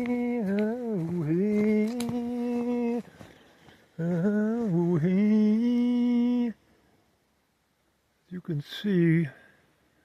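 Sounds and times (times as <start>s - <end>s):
person humming: 0.0s - 3.1s.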